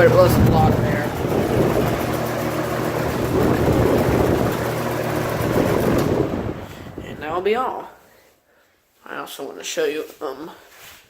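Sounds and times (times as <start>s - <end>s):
rattly box fan running: 0.0s - 7.9s.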